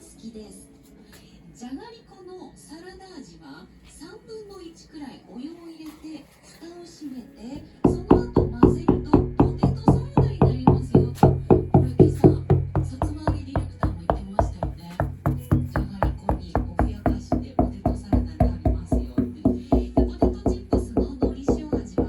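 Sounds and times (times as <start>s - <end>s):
knocking on deck: 7.8s - 22.0s.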